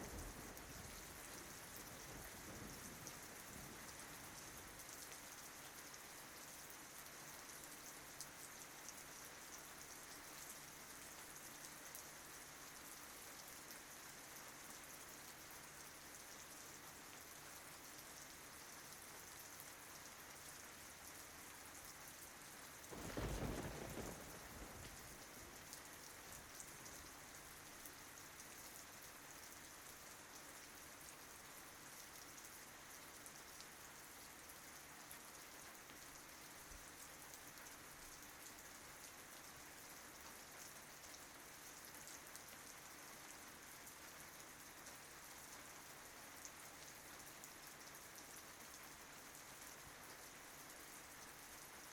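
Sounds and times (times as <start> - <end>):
low thunder rumble: 0.0 - 4.0, 22.9 - 26.0
faint rain falling: 0.0 - 51.9.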